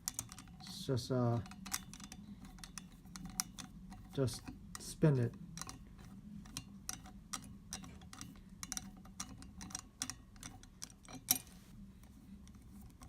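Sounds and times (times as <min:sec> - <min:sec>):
wing corkscrew clicking: 0:01.4 - 0:05.0.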